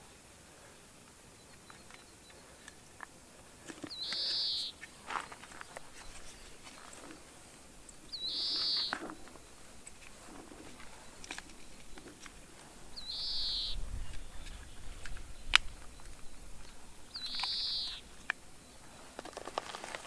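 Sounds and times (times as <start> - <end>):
handling clicks and rustles: 1.0 - 13.2, 13.8 - 20.0
bird call with high trill: 3.9 - 7.3, 8.0 - 9.6, 13.0 - 18.8.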